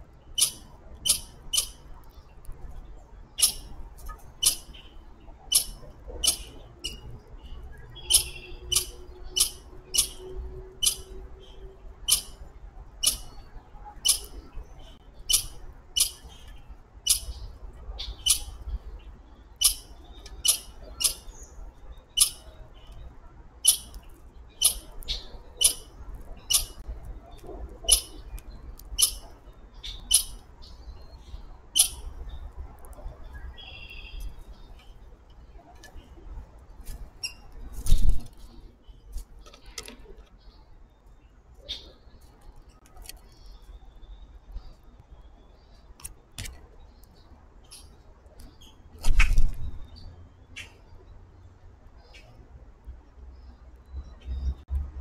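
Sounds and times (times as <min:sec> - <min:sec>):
songbird chip calls: 0:00.3 - 0:02.3, 0:03.3 - 0:12.4, 0:13.0 - 0:23.0, 0:23.6 - 0:35.0, 0:41.6 - 0:42.2.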